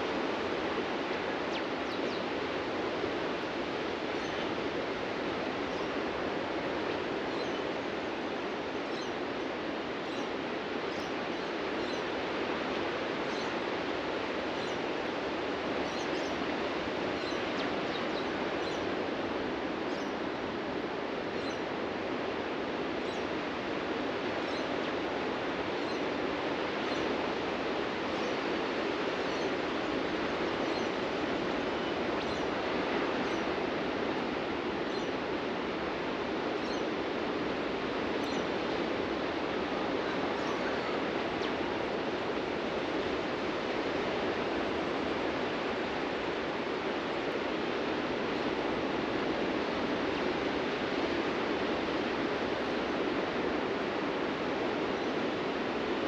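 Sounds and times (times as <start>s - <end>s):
ocean surf washing onto beach: 0.0s - 56.0s.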